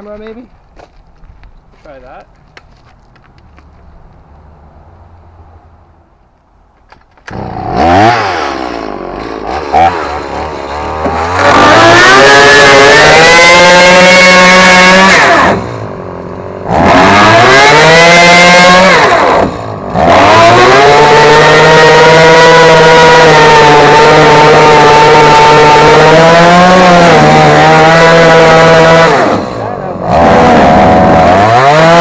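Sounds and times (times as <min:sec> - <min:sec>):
chainsaw cutting: 0:06.9 - 0:32.0.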